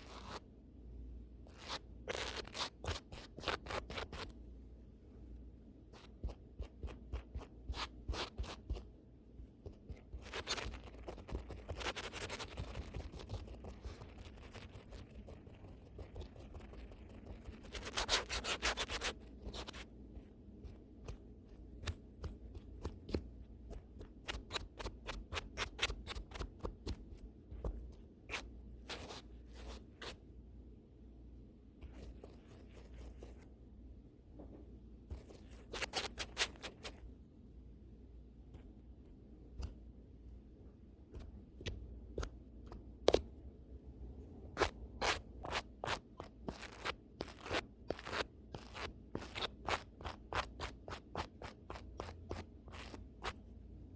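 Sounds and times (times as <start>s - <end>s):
brush scratching over microphone: 10.0s - 19.9s, 44.6s - 53.4s.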